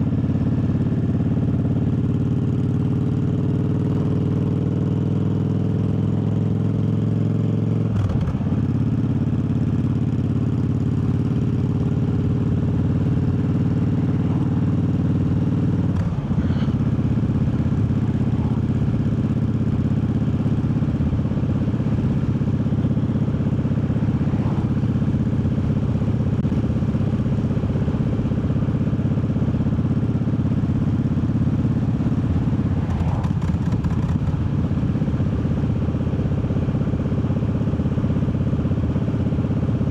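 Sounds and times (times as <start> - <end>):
motorcycle engine changing gear: 32.3 - 34.5.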